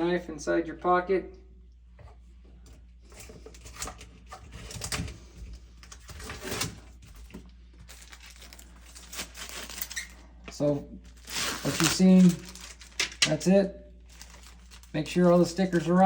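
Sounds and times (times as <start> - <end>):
wrapping crinkling: 5.7 - 16.0.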